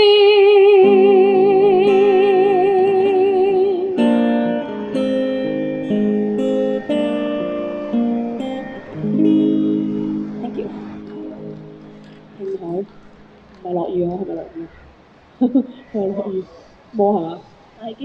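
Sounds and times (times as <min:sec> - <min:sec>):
woman singing with vibrato: 0:00.0 - 0:04.0
acoustic guitar chords: 0:00.0 - 0:14.8.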